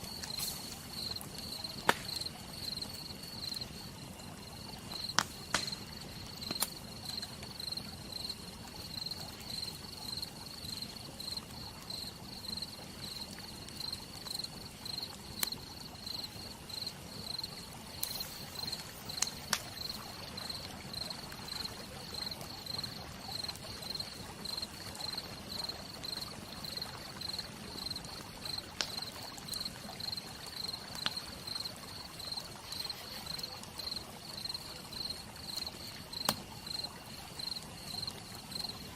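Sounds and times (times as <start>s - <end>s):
rain hissing: 0.0s - 3.5s, 17.7s - 21.6s
campfire crackling and popping: 0.0s - 38.9s
cricket chirping: 0.0s - 38.9s.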